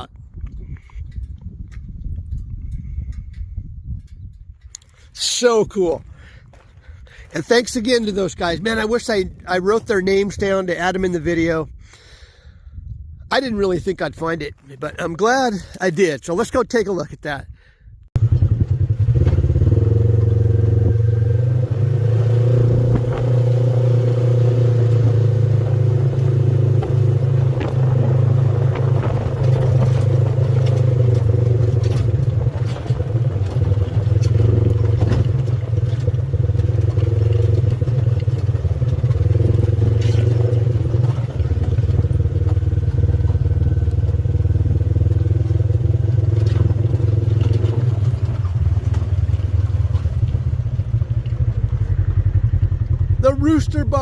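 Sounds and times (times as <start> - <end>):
off-road vehicle engine running: 0.0 - 11.8, 18.2 - 54.0
vehicle clattering over rough ground: 18.2 - 54.0.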